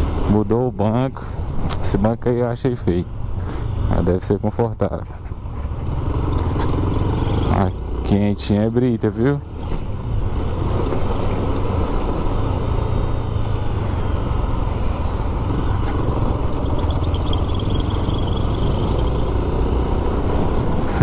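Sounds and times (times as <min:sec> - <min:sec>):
road and wind noise: 0:00.0 - 0:21.0
motorcycle engine running: 0:05.4 - 0:08.4, 0:09.5 - 0:21.0.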